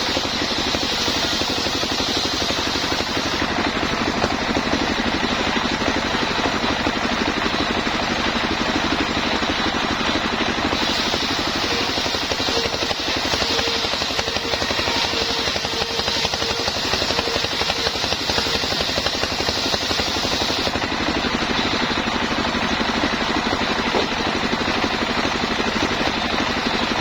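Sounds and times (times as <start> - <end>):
bright hiss: 0.0 - 3.4, 10.8 - 20.7
high steady hum: 0.0 - 27.0
sawmill engine running: 0.0 - 27.0.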